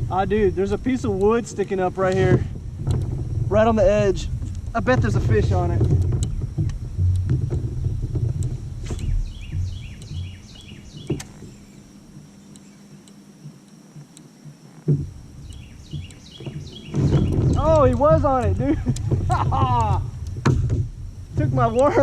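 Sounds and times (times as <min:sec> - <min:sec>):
wind rumble on microphone: 0:00.0 - 0:12.4, 0:13.9 - 0:22.0
bird chirps: 0:08.9 - 0:13.2, 0:15.4 - 0:18.0
sharp knocks: 0:11.0 - 0:11.6, 0:15.8 - 0:21.6.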